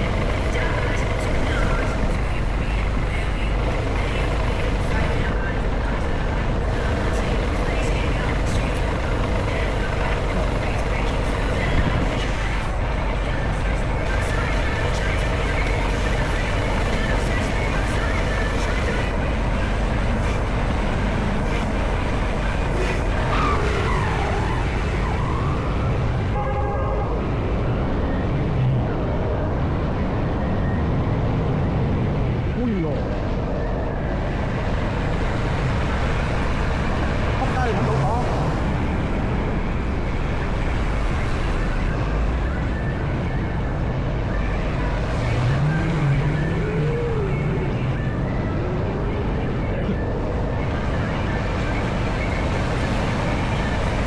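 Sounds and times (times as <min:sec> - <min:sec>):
motorcycle engine running: 0:00.0 - 0:25.3.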